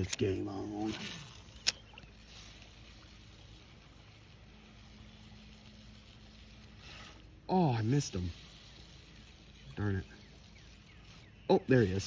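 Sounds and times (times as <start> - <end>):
faint outdoor background noise: 0.0 - 12.0
sharp click: 0.9 - 1.9.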